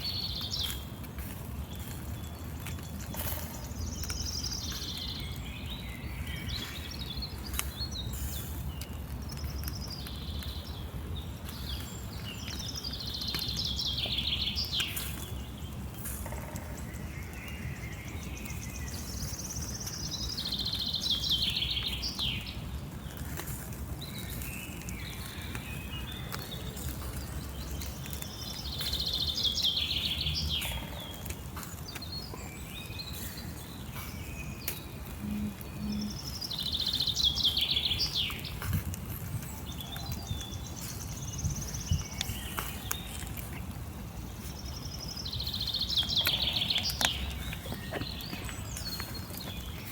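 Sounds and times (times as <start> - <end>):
soft bird chips: 0.0 - 49.9
songbird trilling: 28.2 - 38.5, 44.6 - 49.9
low rumble: 35.0 - 36.5.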